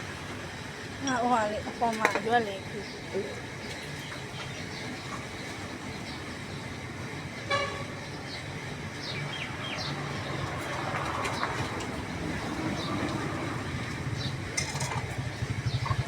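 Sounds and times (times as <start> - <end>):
street traffic: 0.0 - 16.0
short high vehicle horn: 7.5 - 8.0.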